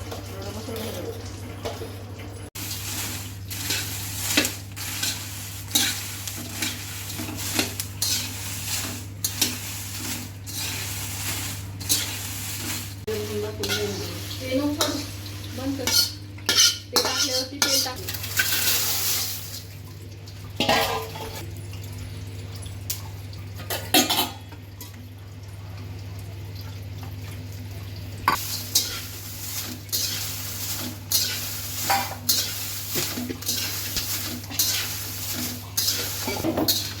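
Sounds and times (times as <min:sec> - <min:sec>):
metal utensil clinking on pan: 0:13.6 - 0:14.0, 0:15.8 - 0:18.8, 0:20.6 - 0:21.4, 0:30.8 - 0:37.0.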